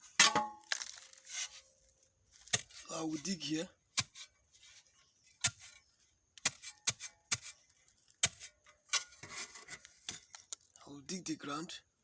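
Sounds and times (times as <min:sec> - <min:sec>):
digging tool striking ground: 0:00.0 - 0:01.6, 0:02.4 - 0:03.3, 0:03.9 - 0:04.8, 0:05.4 - 0:10.6.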